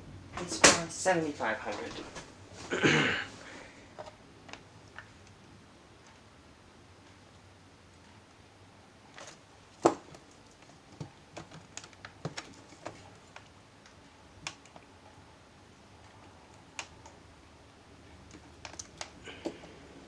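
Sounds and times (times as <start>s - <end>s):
plastic laptop case clicking: 9.2s - 13.5s.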